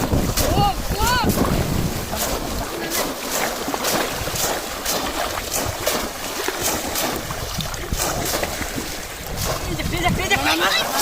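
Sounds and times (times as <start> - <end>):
splashing in shallow water: 0.0 - 11.0
wind rumbling on microphone: 0.0 - 11.0.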